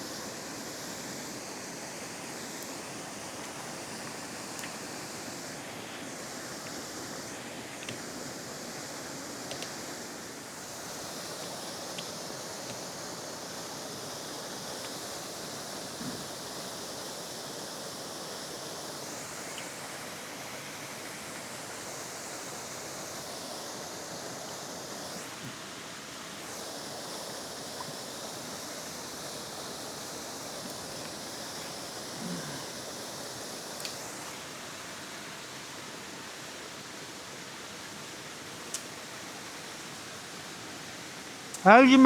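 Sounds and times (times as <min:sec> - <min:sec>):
flowing river water: 0:00.0 - 0:42.0
faint ticks: 0:03.4 - 0:04.8, 0:09.5 - 0:09.8, 0:33.8 - 0:34.0.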